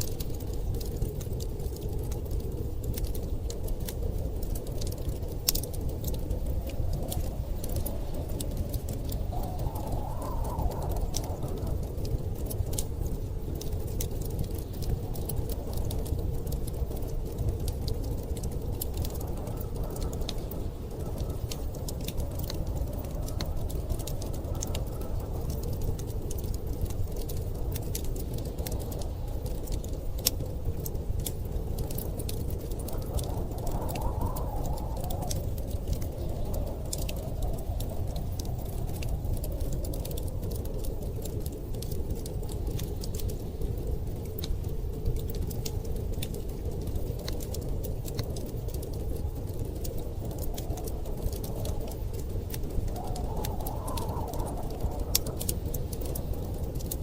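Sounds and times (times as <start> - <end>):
low rumble of storm wind: 0.0 - 57.0
wood fire crackling: 0.0 - 57.0
faint wind whistle: 6.3 - 13.8, 28.3 - 41.5, 46.7 - 57.0.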